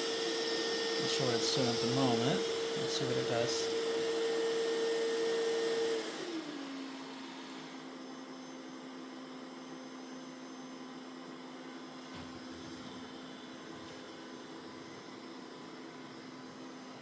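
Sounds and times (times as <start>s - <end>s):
robot vacuum suction motor whining: 0.0s - 8.7s.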